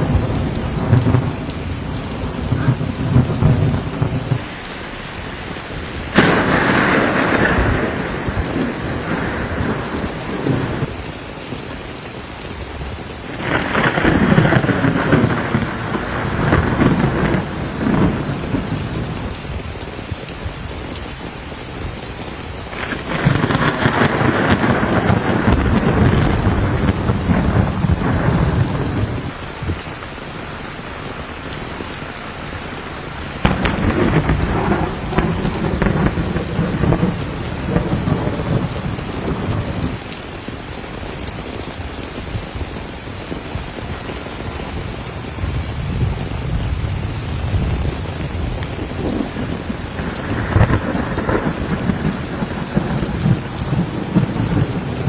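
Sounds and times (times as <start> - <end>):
steady rain: 0.0 - 55.0
thunder rumbling: 0.0 - 55.0.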